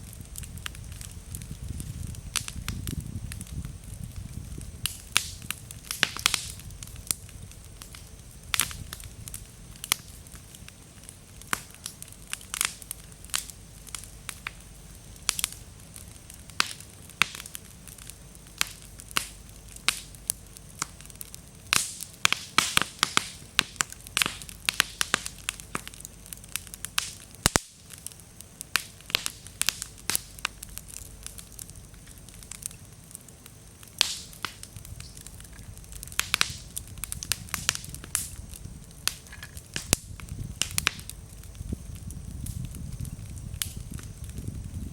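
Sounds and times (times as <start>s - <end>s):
bonfire crackling: 0.0s - 44.9s
wood popping: 33.9s - 41.6s.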